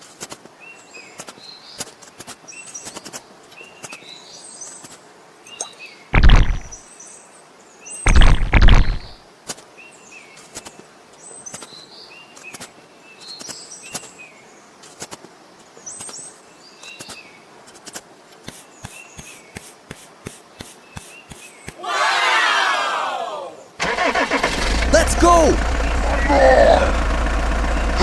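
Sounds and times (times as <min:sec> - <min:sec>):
birds chirping: 0:00.8 - 0:09.2, 0:24.9 - 0:28.0
sharp clicks: 0:06.2 - 0:06.8, 0:08.1 - 0:09.2.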